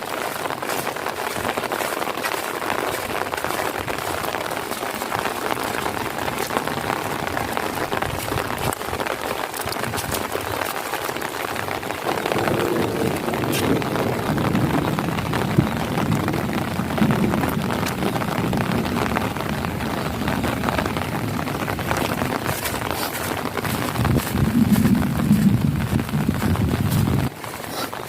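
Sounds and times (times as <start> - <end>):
heavy rain on puddles: 0.0 - 28.0
raindrops clicking: 0.0 - 28.0
low rumbling: 12.0 - 27.3.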